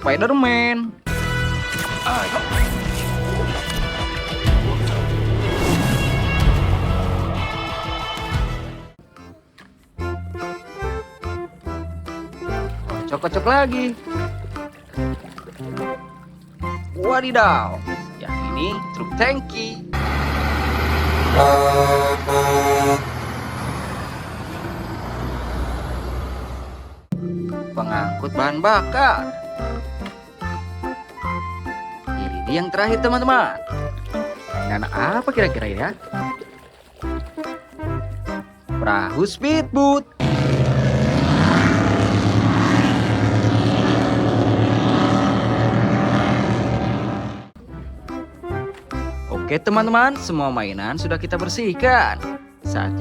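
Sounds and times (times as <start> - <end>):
speedboat motor droning: 10.1 - 50.9
truck engine running: 10.9 - 31.6, 40.2 - 49.3
truck horn blasts: 17.4 - 23.7, 40.2 - 47.6.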